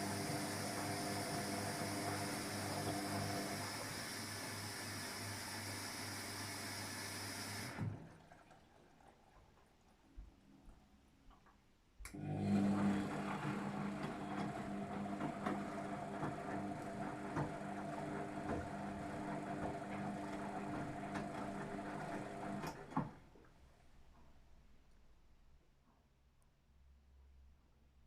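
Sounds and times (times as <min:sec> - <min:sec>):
washing machine motor hum: 0:00.0 - 0:09.4, 0:12.1 - 0:23.2.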